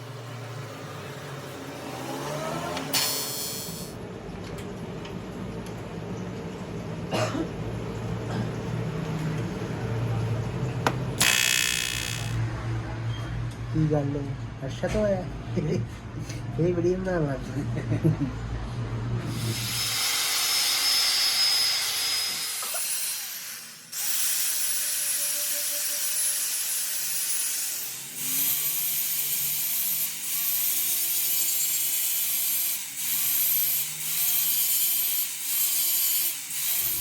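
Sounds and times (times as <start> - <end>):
tool grinding metal: 2.9 - 3.9, 11.2 - 12.4, 19.3 - 37.0.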